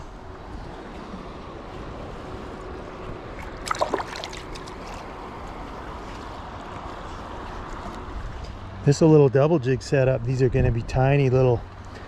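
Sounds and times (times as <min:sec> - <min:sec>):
water pouring through spillway: 0:03.5 - 0:04.9.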